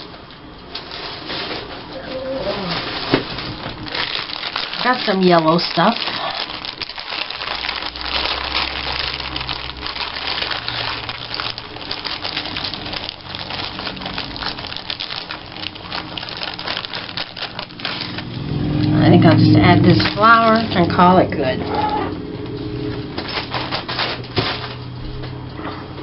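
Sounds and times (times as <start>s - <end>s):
paper scraps rustling: 0.8s - 18.5s, 23.2s - 25.0s.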